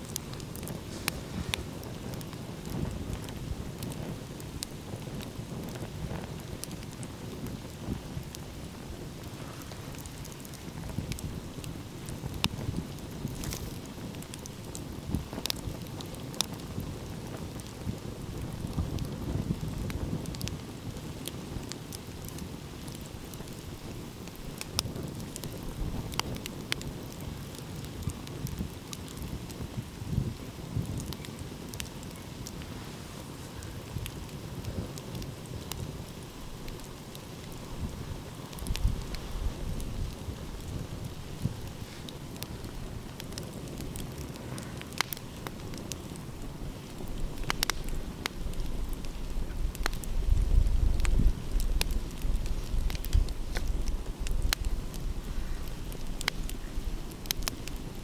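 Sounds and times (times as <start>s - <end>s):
fire popping: 0.0s - 58.0s
wind: 0.0s - 58.0s
wood fire crackling: 0.0s - 58.0s.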